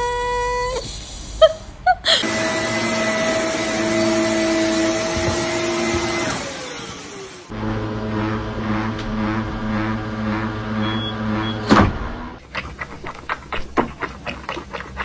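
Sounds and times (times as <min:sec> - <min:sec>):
vacuum cleaner motor whining: 0:02.2 - 0:09.5
drawn-out whine: 0:02.2 - 0:12.4.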